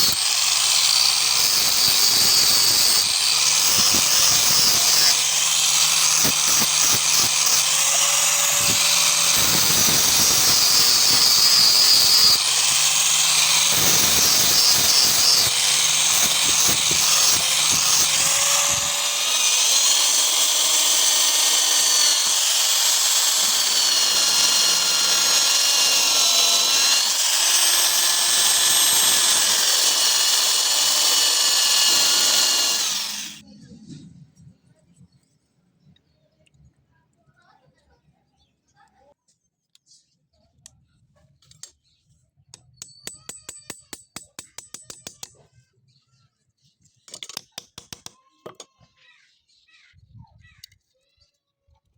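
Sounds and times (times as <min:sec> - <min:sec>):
power tool whining on steel: 0:00.0 - 0:33.4.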